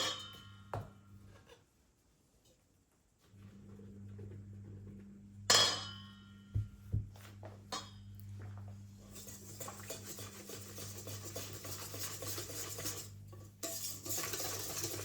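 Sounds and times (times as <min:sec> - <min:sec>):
utensil scraping in a bowl: 0:09.0 - 0:15.0.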